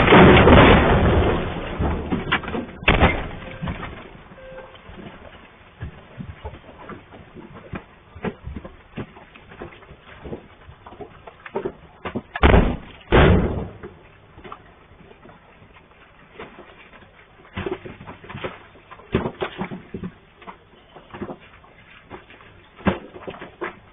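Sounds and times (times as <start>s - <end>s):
heavy crashes of falling rock: 0.0s - 10.5s, 11.5s - 14.0s.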